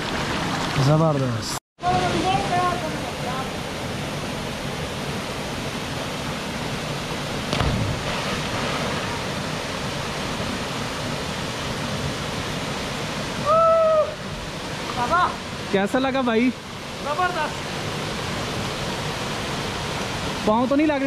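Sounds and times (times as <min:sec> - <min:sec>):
waterfall rushing: 0:01.8 - 0:21.0.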